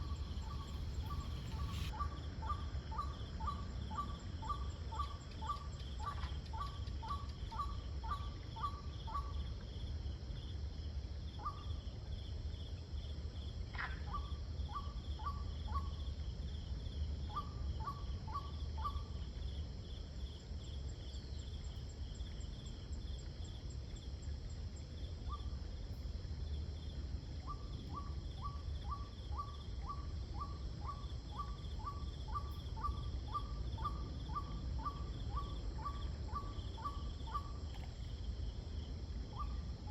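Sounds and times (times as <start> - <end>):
high thin insect trill: 0.0 - 2.0
crickets chirring: 0.0 - 39.9
low steady rumble: 0.0 - 39.9.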